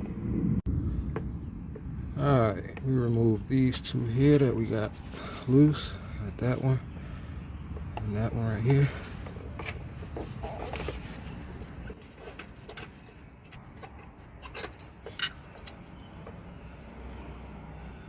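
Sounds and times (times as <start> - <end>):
hand tools clicking and tapping: 7.6 - 16.5.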